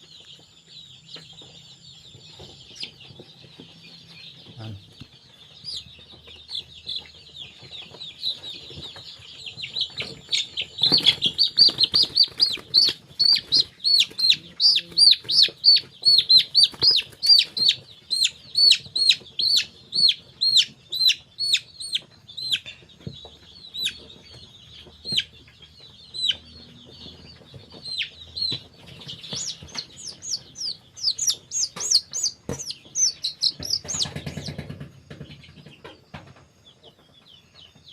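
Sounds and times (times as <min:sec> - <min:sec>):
chicks peeping: 0:00.0 - 0:37.9.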